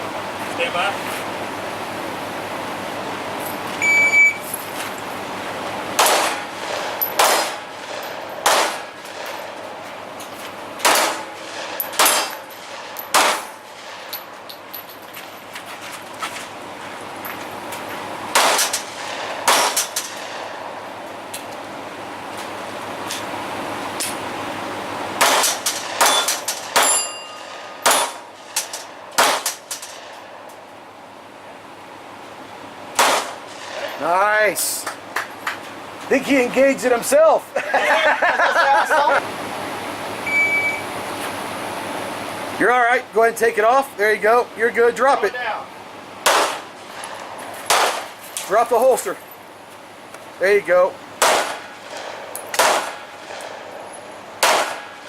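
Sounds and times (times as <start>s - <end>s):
shot timer beep: 3.8s - 4.4s, 40.2s - 40.8s
gunshots: 6.0s - 9.4s, 10.8s - 14.1s, 18.3s - 20.5s, 25.2s - 30.1s, 33.0s - 34.0s, 46.2s - 47.1s, 47.7s - 48.2s, 51.2s - 53.7s, 54.4s - 55.0s
bullets clanging on steel plates: 10.8s - 15.1s, 25.2s - 30.2s.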